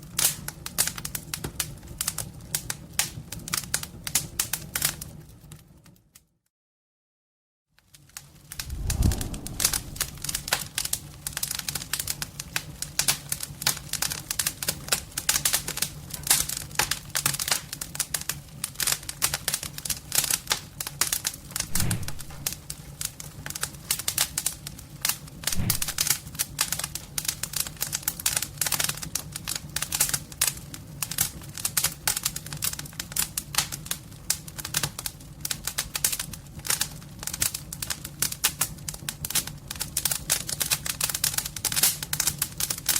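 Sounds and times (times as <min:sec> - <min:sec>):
wood fire crackling: 0:08.2 - 0:26.4, 0:27.1 - 0:42.9.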